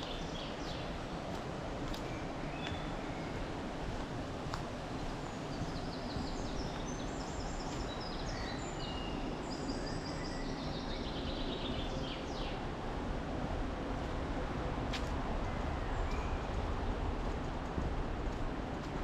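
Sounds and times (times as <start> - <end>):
small songbird singing: 5.6 - 12.6.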